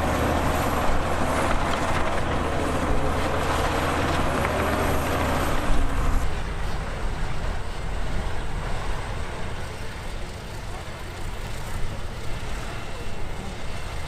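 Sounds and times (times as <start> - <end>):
heavy machinery diesel engine: 0.0 - 14.0.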